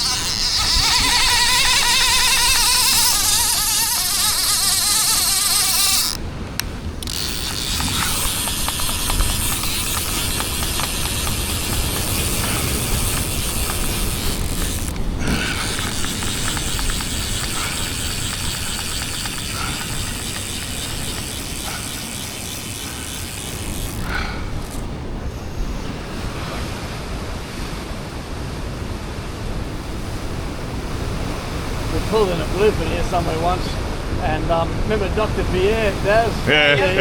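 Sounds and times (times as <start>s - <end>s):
wind rumbling on microphone: 0.0s - 37.0s
ocean surf: 23.6s - 37.0s.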